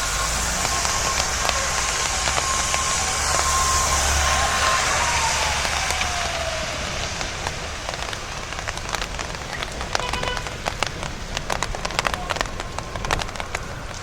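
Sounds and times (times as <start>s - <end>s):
tram electric drive whine: 0.0s - 9.4s
low rumble: 0.0s - 14.0s
rain hissing on wet street: 0.0s - 14.0s.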